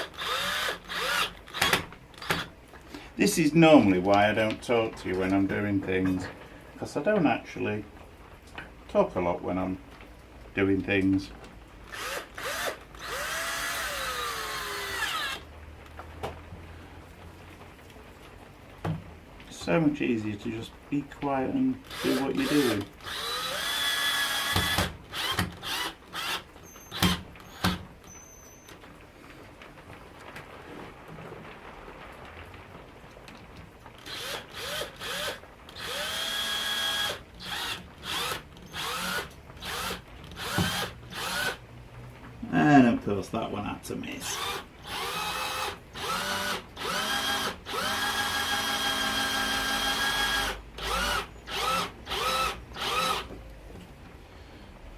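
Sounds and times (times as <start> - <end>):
power drill into wood: 0.0 - 2.5, 11.9 - 15.5, 21.8 - 28.8, 34.0 - 41.6, 44.2 - 53.3.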